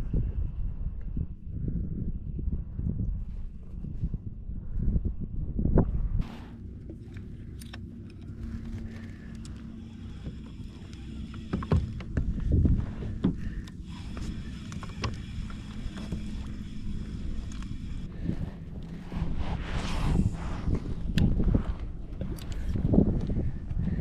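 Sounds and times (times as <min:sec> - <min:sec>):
wind and water rumble: 0:00.0 - 0:24.0.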